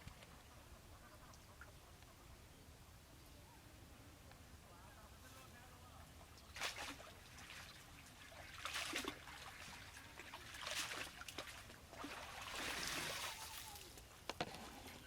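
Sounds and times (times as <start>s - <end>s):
water splashing and trickling: 6.3s - 15.0s.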